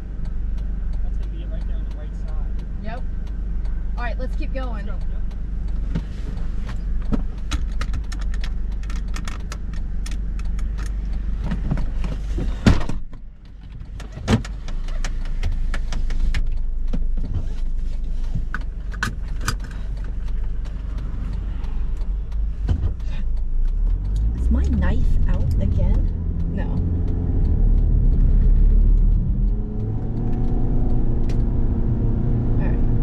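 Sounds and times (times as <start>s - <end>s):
car engine and tyre rumble: 0.0s - 33.0s
small clicks and rattles: 6.4s - 24.3s.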